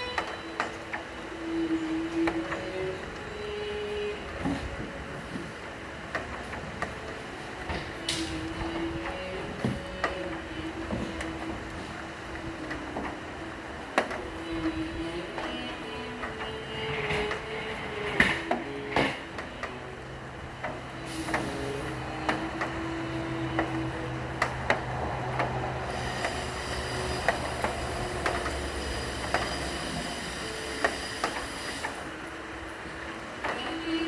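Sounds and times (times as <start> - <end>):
slow cello notes: 0.0 - 6.3, 6.9 - 32.3
raindrops tapping: 0.0 - 32.4
rain hissing: 18.8 - 34.0.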